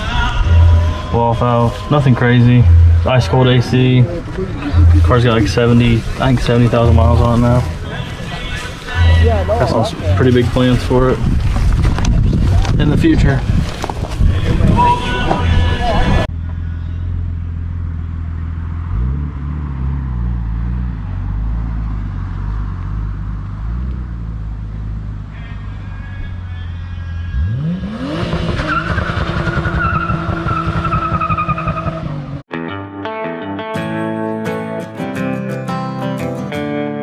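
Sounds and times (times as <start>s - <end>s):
tires squealing: 0.0s - 11.3s, 13.9s - 17.2s, 24.8s - 32.4s
car engine idling and revving: 0.0s - 12.2s, 16.2s - 32.5s.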